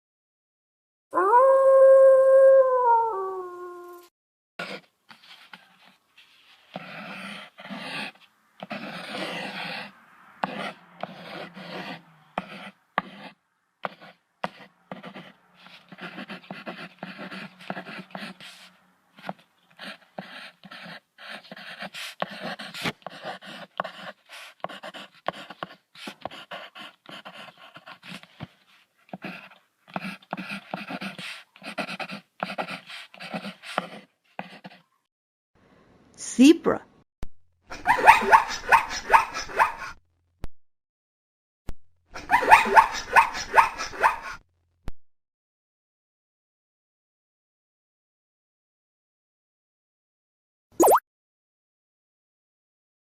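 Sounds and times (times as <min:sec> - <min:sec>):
wolf panting: 0:06.7 - 0:12.7, 0:29.1 - 0:34.8.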